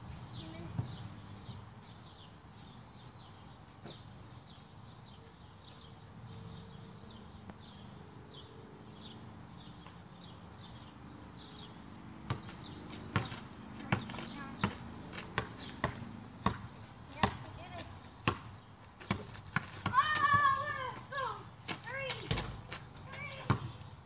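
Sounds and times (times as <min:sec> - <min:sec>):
bird chirping: 0:00.1 - 0:19.4, 0:22.8 - 0:24.0
basketball bouncing on driveway: 0:00.6 - 0:01.6, 0:11.6 - 0:24.0.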